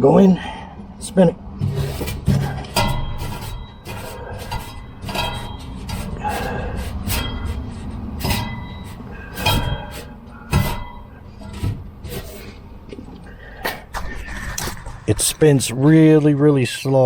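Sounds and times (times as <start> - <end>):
knocks in metal blower housing: 1.6 - 12.8
low rumble: 12.6 - 15.9.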